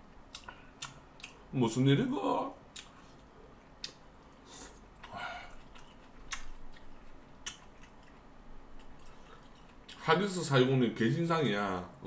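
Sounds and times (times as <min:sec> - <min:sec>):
mouth clicks and smacks: 0:00.2 - 0:01.4, 0:02.7 - 0:04.0, 0:04.6 - 0:08.2
person chewing food: 0:00.2 - 0:01.5, 0:02.7 - 0:10.0.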